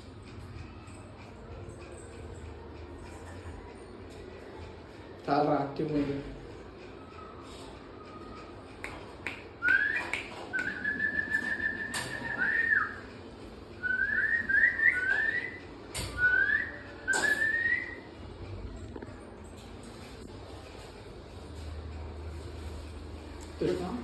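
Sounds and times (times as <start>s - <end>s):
person whistling: 9.6s - 13.0s.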